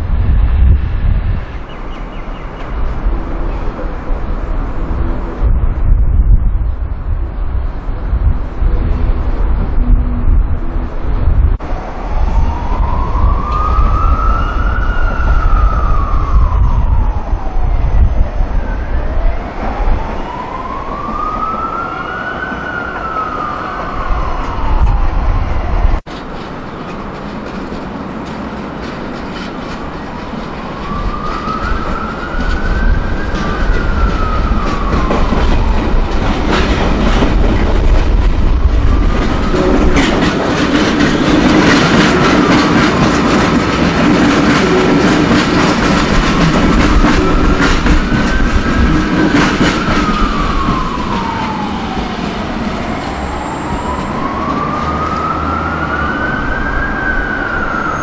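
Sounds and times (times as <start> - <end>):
electric train passing: 0.0 - 58.0
siren wailing: 8.6 - 26.0, 30.6 - 58.0
wheels clicking over rail joints: 26.1 - 54.4.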